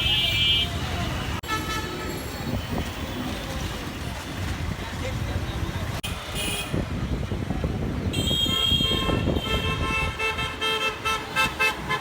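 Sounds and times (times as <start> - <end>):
low rumble of engines: 0.0 - 12.0
vehicle horn honking: 8.2 - 12.0.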